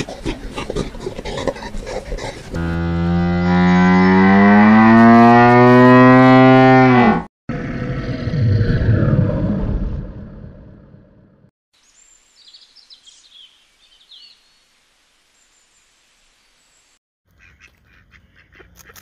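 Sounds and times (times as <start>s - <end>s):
low rumbling noise: 7.5s - 11.5s.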